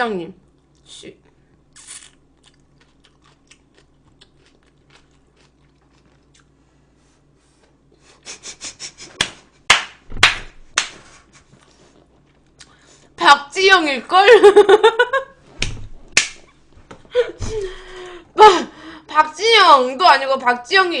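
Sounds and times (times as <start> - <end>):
crunchy chewing: 1.7 - 6.6.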